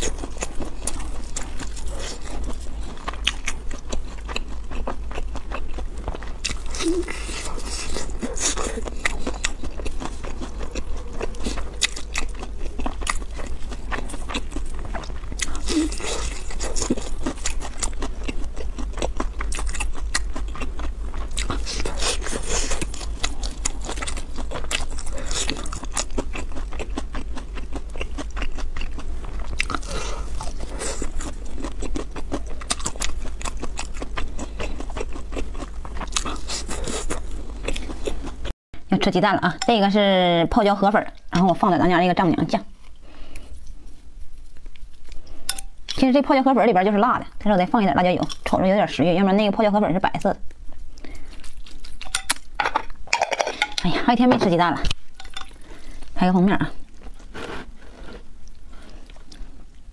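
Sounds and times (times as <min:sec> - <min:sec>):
crunching crispy fried food: 0:00.0 - 0:38.5.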